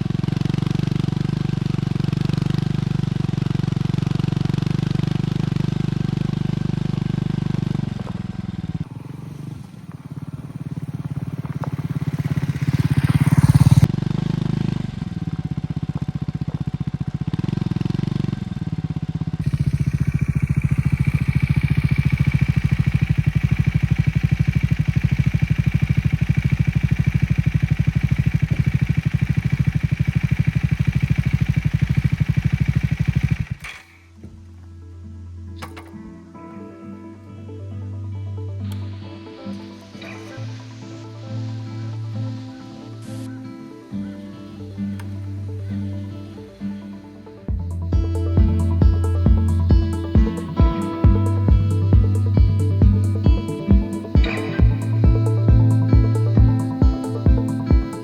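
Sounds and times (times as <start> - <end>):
motorcycle engine revving: 0.0 - 34.4, 38.6 - 58.0
motorcycle engine idling: 0.0 - 34.6, 43.2 - 58.0.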